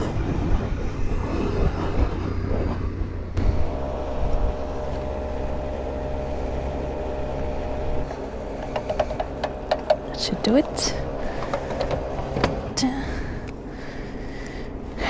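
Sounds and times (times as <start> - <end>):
motorcycle engine: 0.0 - 12.9
wind rumble: 0.0 - 15.0
fuel pump humming: 2.9 - 15.0.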